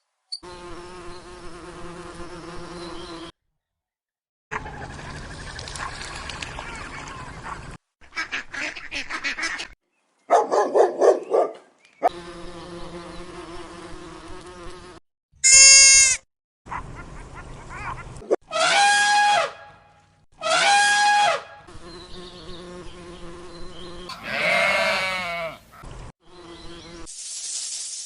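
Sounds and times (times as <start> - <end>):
rapid repeated animal calls: 24.1 - 25.8.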